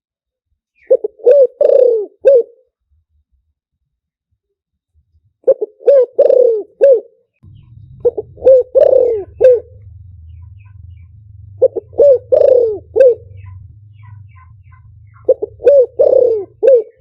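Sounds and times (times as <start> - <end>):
dove cooing: 0.8 - 2.6, 5.5 - 17.0
faint low hum: 7.4 - 17.0.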